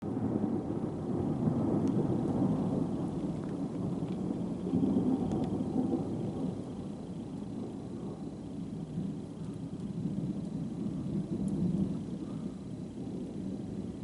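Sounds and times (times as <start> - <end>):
thunder rumbling: 0.0 - 14.0
faint ticks: 1.8 - 2.0, 3.2 - 5.6, 6.5 - 12.5.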